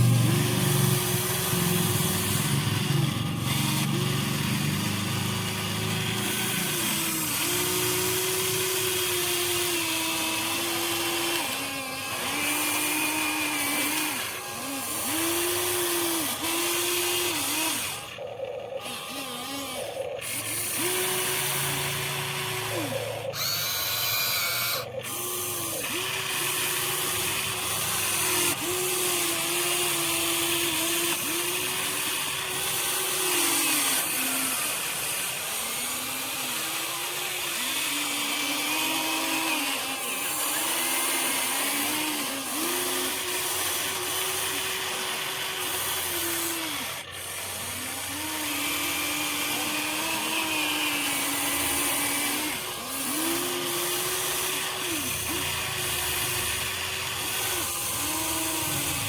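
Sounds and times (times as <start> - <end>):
electric gear motors whining: 0.0 - 59.0.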